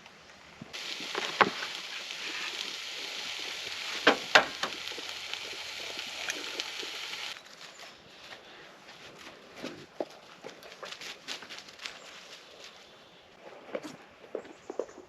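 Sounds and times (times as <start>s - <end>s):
food sizzling in a pan: 0.7s - 7.4s
sharp pops: 0.8s - 7.4s.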